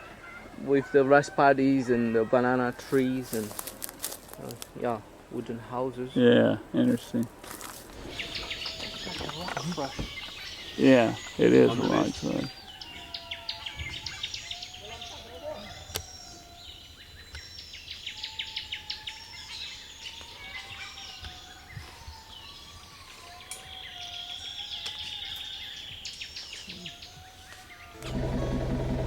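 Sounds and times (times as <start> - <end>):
birds calling with whistles and trills: 7.9 - 28.0
buzzy bird note: 28.0 - 29.0.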